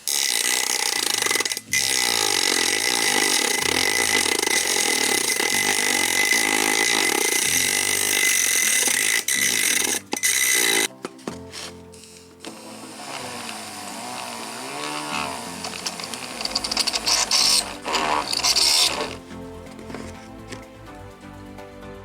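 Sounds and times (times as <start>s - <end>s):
grinder motor whining: 0.0s - 20.7s.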